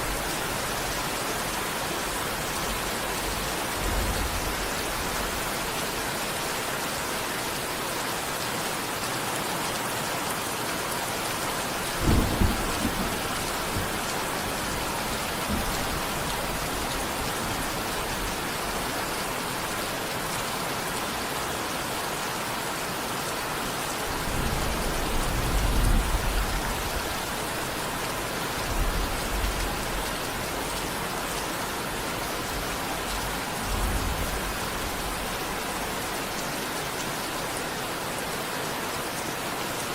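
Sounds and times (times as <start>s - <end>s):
steady rain: 0.0s - 39.9s
thunder claps and rumbles: 11.6s - 18.4s, 24.1s - 27.3s.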